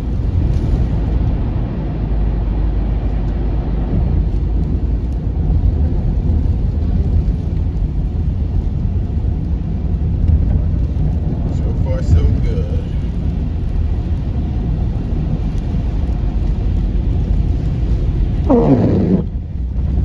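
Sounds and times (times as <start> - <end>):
car driving on snowy road: 0.0 - 20.0.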